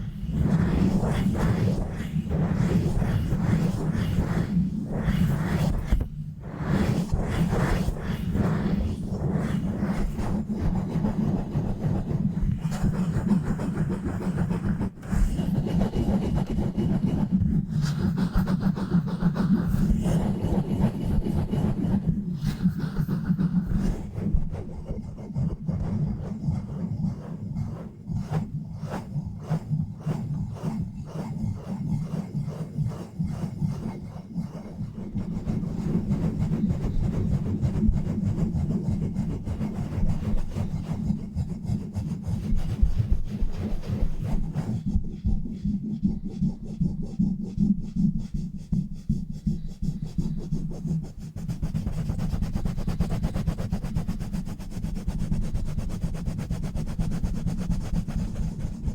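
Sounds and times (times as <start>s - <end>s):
rubbing on bare microphone: 0.0s - 58.9s.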